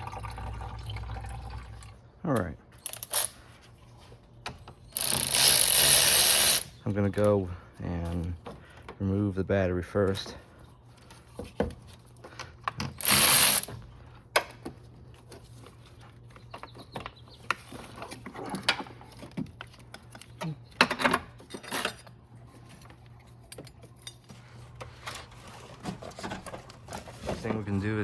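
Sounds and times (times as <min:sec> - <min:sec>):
hand ratchet clicking: 0:05.0 - 0:06.7, 0:12.9 - 0:13.7
tools clanking on metal: 0:16.8 - 0:27.6.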